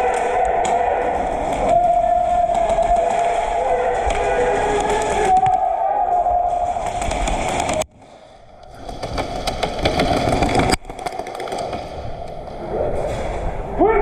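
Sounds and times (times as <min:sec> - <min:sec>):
airsoft guns popping: 0:08.6 - 0:12.4.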